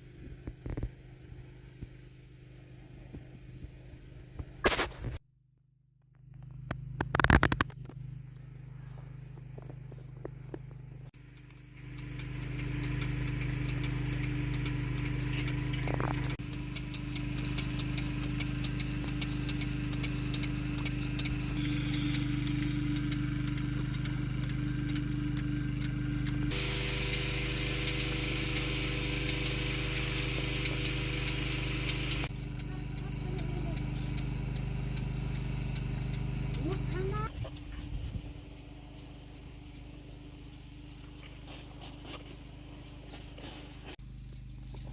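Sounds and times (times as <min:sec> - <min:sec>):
machine motor humming: 0:11.2 - 0:37.2
hiss: 0:26.5 - 0:32.3.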